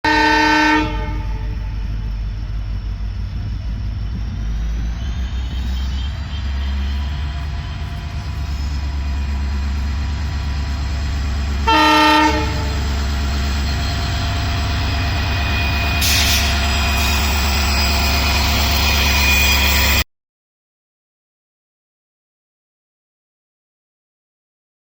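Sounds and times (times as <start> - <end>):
train horn blast: 0.0 - 1.9, 11.6 - 13.0
freight train rumbling on rails: 0.0 - 20.0.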